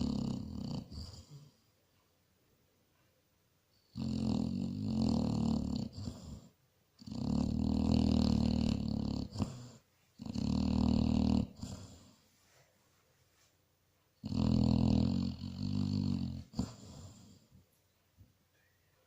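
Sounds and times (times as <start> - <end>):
dog snoring: 0.0 - 1.7, 3.8 - 12.2, 14.2 - 17.5.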